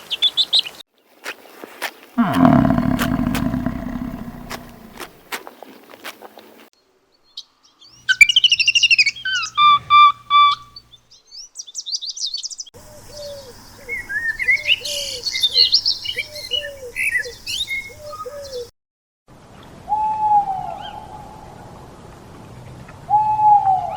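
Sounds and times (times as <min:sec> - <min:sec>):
low repeating bird call: 0:02.2 - 0:05.0.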